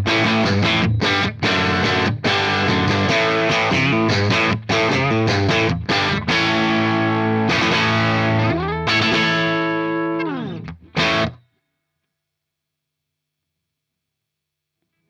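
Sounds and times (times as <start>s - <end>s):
distorted electric guitar: 0.0s - 11.4s.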